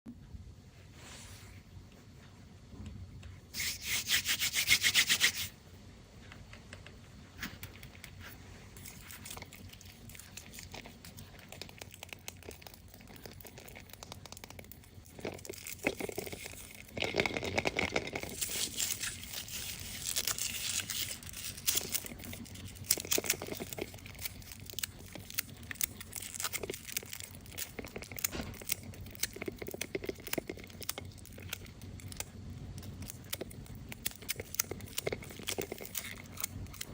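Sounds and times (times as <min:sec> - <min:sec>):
candy wrappers ripping: 0:08.8 - 0:36.9
wrappers crinkling and rustling: 0:15.2 - 0:32.2.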